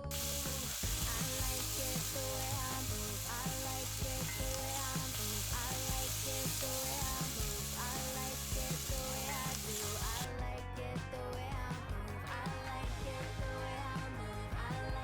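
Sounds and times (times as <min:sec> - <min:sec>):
hot oil sizzling: 0:00.0 - 0:10.3
background music with beat: 0:00.0 - 0:15.0.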